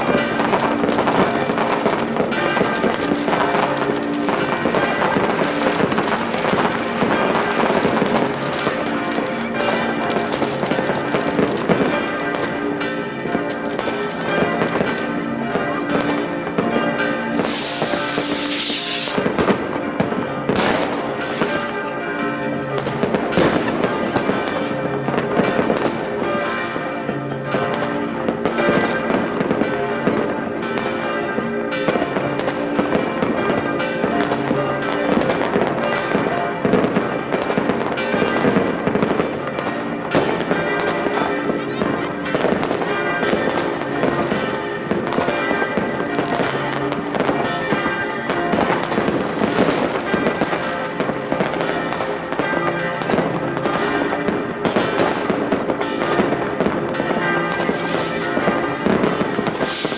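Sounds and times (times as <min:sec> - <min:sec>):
fireworks bangs and crackles: 0:00.0 - 0:26.9, 0:27.5 - 0:59.9
steady pitched tones: 0:17.2 - 0:19.3.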